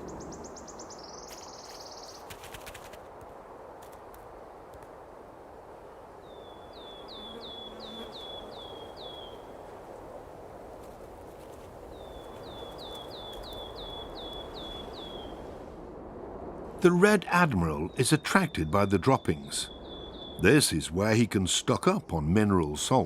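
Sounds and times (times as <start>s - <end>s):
songbird singing: 0.0s - 2.4s, 6.2s - 9.8s, 11.9s - 15.5s, 16.8s - 23.0s
outdoor background hiss: 0.0s - 23.0s.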